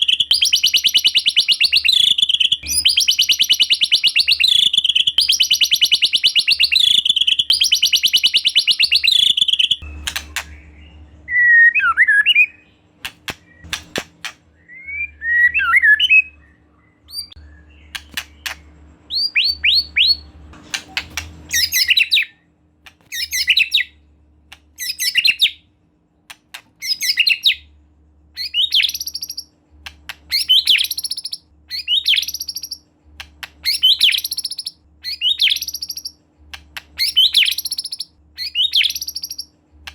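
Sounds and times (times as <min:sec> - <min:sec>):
bird whistled notes: 0:00.0 - 0:10.7, 0:14.6 - 0:20.2, 0:21.5 - 0:22.4, 0:33.6 - 0:36.2.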